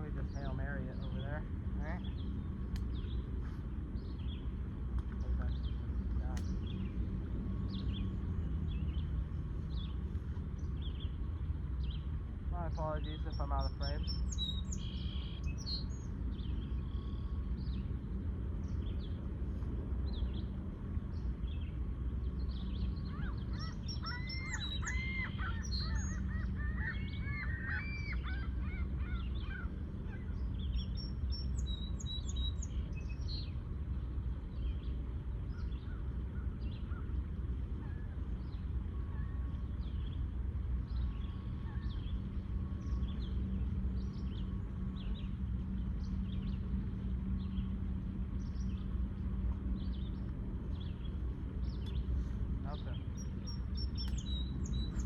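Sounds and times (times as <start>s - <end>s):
birds chirping: 0.0s - 55.0s
low rumble: 0.0s - 55.0s
birds honking: 23.1s - 30.6s.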